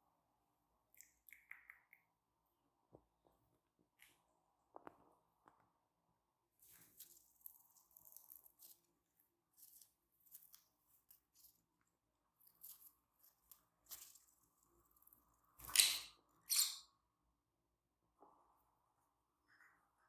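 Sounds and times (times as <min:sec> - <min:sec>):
lovebirds chirping: 0:15.6 - 0:16.9.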